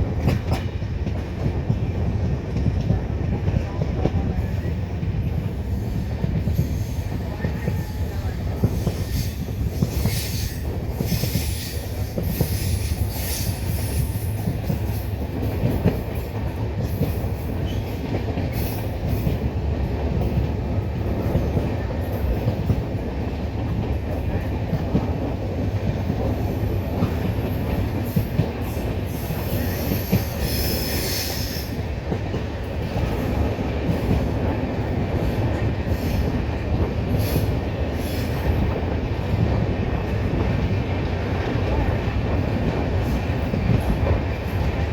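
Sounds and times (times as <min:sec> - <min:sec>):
train wheels rumbling on rails: 0:00.0 - 0:44.9
high wheel squeals: 0:29.2 - 0:31.8.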